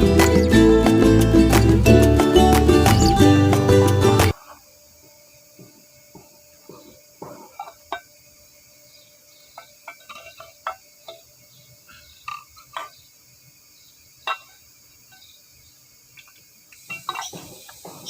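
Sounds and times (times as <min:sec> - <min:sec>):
faint steady hiss: 0:04.3 - 0:18.0.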